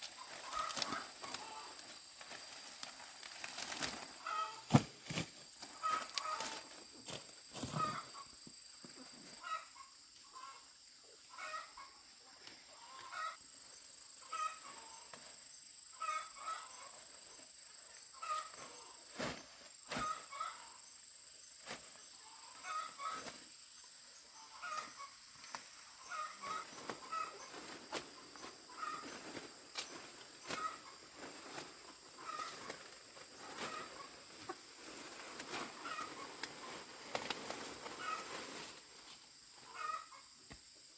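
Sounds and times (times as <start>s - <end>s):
chickens clucking: 0.1s - 2.2s, 3.7s - 4.8s, 5.6s - 6.8s, 7.6s - 8.3s, 14.2s - 15.0s, 22.2s - 23.5s, 24.4s - 38.6s, 39.6s - 40.3s.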